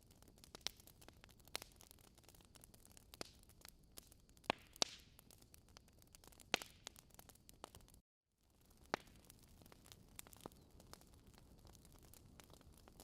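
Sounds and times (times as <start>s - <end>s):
fire hissing softly: 0.0s - 13.0s
logs crackling and popping: 0.0s - 13.0s.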